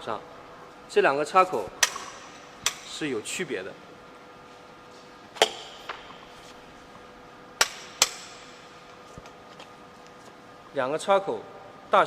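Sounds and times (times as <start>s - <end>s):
hard parts clicking and knocking: 7.6s - 9.4s.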